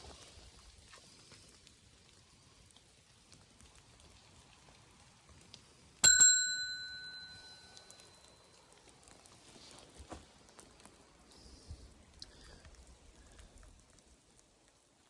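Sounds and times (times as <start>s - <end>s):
faint rain patter: 0.0s - 15.0s
bright metallic ding: 6.0s - 8.1s.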